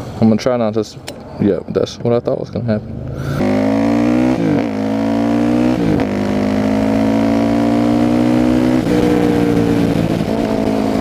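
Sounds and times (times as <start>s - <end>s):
motorcycle engine accelerating: 2.9s - 11.0s.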